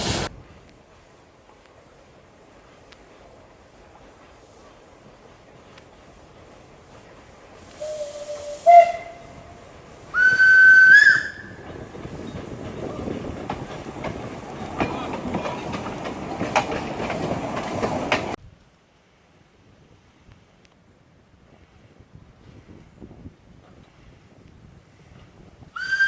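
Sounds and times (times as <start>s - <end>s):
train wheel and rail noise: 0.0s - 18.4s, 19.0s - 26.0s
locomotive whistle blasts: 7.7s - 9.5s, 10.1s - 11.6s, 25.8s - 26.0s.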